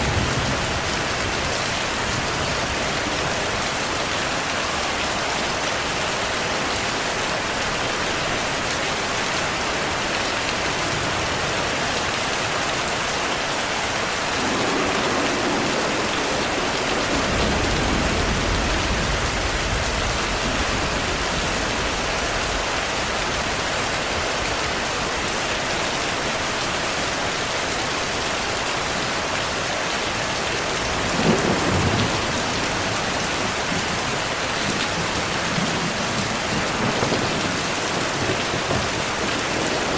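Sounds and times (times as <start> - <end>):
thunder rumbling: 0.0 - 4.0, 14.0 - 24.5, 30.8 - 39.9
heavy rain: 0.0 - 39.9
sharp thunderclap: 14.3 - 22.7, 30.8 - 33.7.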